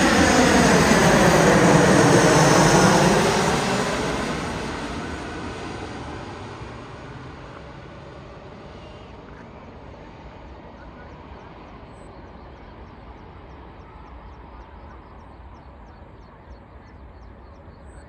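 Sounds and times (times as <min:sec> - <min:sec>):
jet engine rush: 0:00.0 - 0:14.7.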